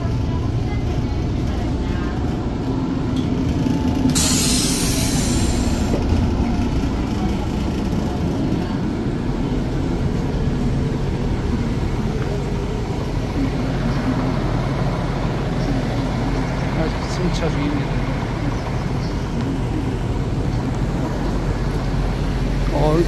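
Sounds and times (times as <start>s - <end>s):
train rumbling at platform: 0.0s - 23.0s
brief hiss: 4.2s - 6.0s.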